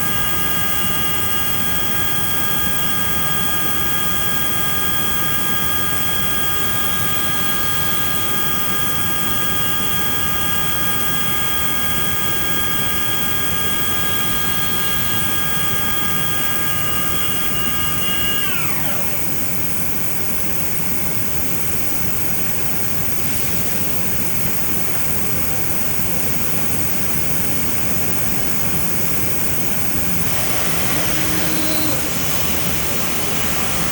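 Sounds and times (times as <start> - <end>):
machine hum and hiss: 0.0 - 33.9
spindle high whine: 13.4 - 19.9, 29.2 - 33.9.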